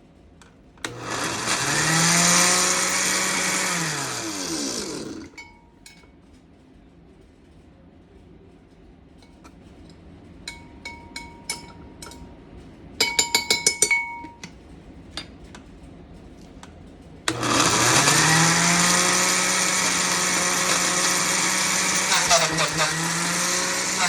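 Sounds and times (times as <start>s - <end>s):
blender motor running: 0.9s - 5.4s, 17.3s - 24.0s
clinks on kitchen container: 13.0s - 14.6s.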